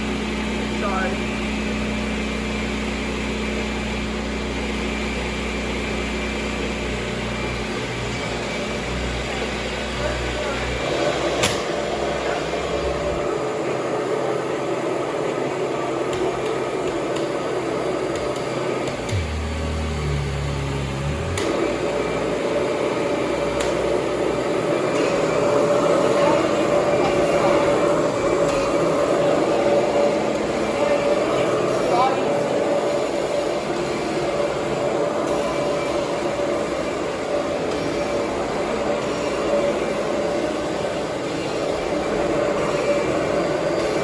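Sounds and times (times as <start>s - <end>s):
vacuum cleaner running: 0.0s - 44.0s
low hum: 18.8s - 31.7s.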